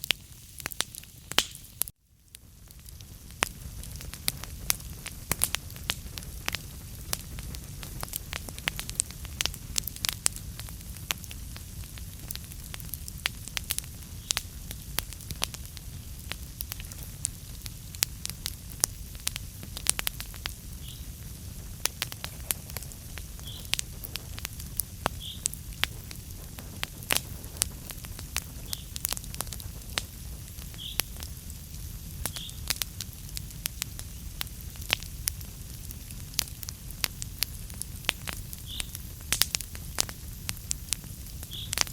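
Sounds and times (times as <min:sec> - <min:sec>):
low rumble of flame: 0:00.0 - 0:41.9
wood fire crackling: 0:00.0 - 0:41.9.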